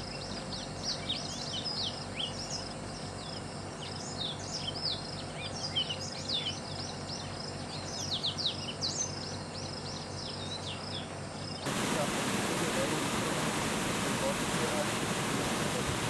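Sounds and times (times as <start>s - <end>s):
low background hum: 0.0s - 16.0s
small birds chirping: 0.0s - 16.0s.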